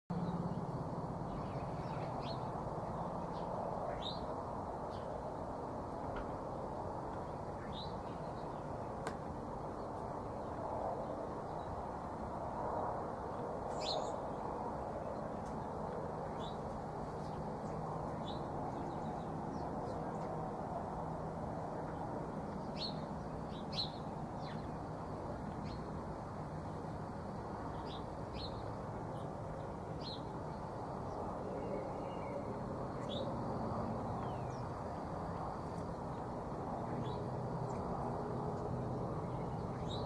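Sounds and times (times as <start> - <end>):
outdoor background rush: 0.1 - 40.0
bird chirps: 13.7 - 14.2.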